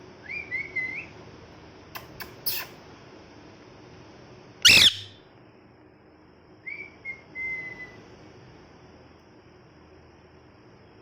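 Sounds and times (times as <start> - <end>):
parrot screeching: 4.6 - 5.2.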